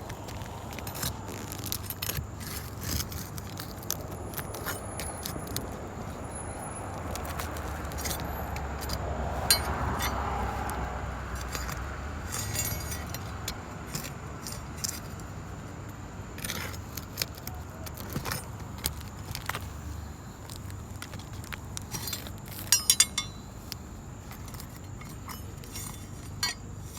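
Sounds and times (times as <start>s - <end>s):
low steady rumble: 0.0s - 26.9s
metal tool scraping shingles: 7.1s - 10.8s, 11.4s - 15.2s, 24.4s - 26.9s.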